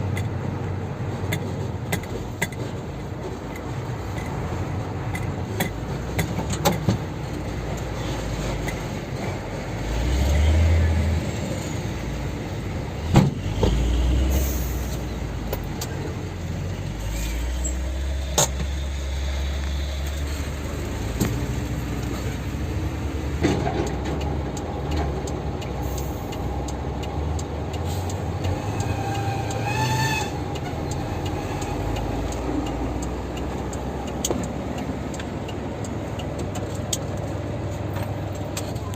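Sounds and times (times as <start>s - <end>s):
truck engine rumbling: 0.0s - 38.9s.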